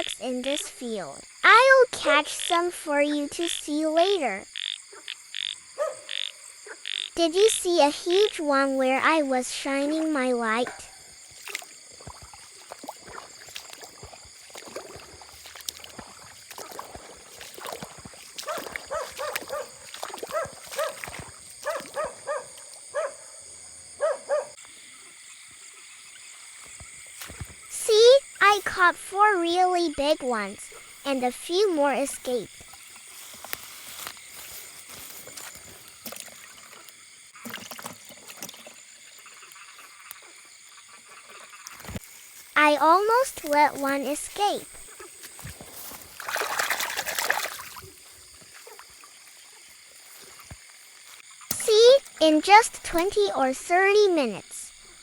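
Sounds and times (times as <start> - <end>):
frogs calling: 0.0 - 55.0
insects calling: 0.0 - 55.0
water splashing: 7.9 - 22.9, 27.0 - 39.9, 41.2 - 55.0.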